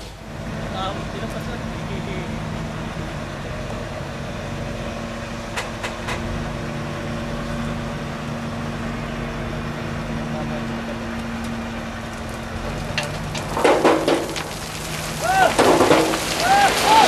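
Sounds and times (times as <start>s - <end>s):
engine running steadily: 0.0s - 16.6s.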